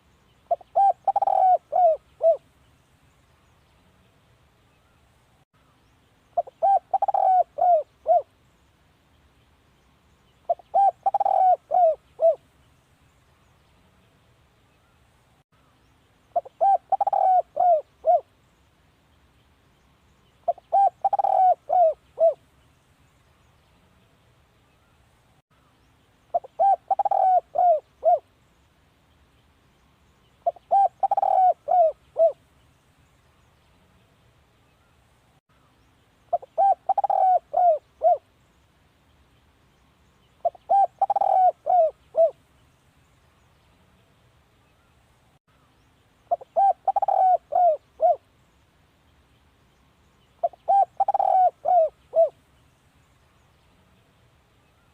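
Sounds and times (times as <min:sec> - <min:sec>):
dove cooing: 0:00.5 - 0:02.4, 0:06.4 - 0:08.3, 0:10.5 - 0:12.4, 0:16.3 - 0:18.3, 0:20.4 - 0:22.4, 0:26.3 - 0:28.3, 0:30.4 - 0:32.4, 0:36.3 - 0:38.3, 0:40.4 - 0:42.4, 0:46.3 - 0:48.2, 0:50.4 - 0:52.4.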